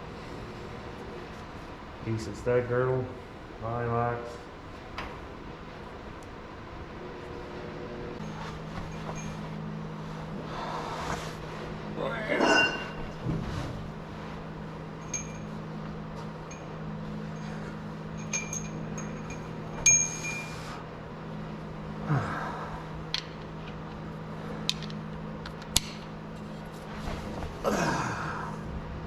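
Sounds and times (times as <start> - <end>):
steady low hum: 0.0 - 29.0
metal engine parts clinking: 15.0 - 15.6, 18.2 - 20.6.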